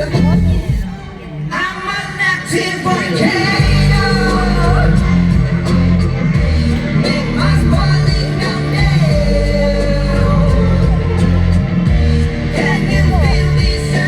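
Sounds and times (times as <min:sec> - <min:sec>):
heavy bass: 0:00.0 - 0:14.0
live band playing: 0:00.0 - 0:14.0
person singing: 0:00.0 - 0:14.0.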